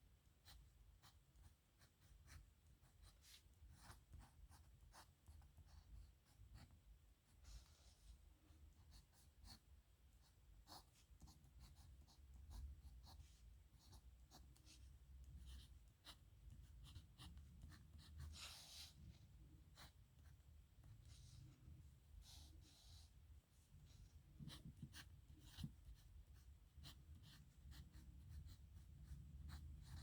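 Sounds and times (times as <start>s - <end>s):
pen nib scratching on paper: 13.8s - 19.0s, 24.4s - 30.0s.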